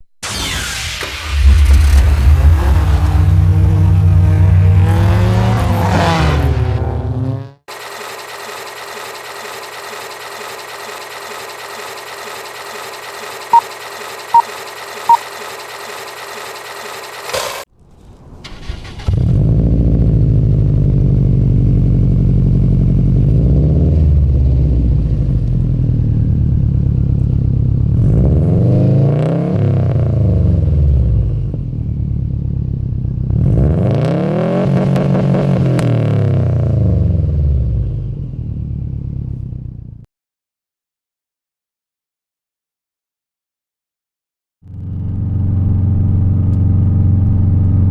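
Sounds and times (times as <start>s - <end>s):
car engine starting and revving: 0.2s - 25.8s, 33.3s - 39.4s
short loud beeps: 12.0s - 17.3s.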